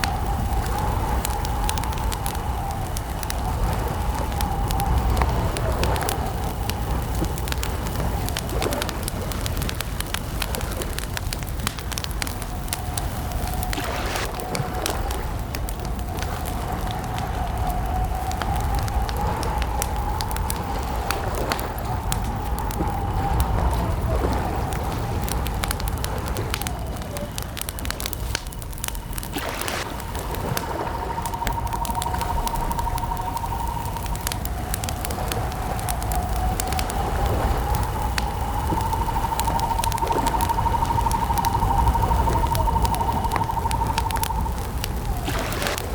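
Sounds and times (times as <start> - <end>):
campfire crackling and popping: 0.0 - 45.9
low rumble of burning fire: 0.0 - 45.9
faint wavering tone: 29.8 - 45.6.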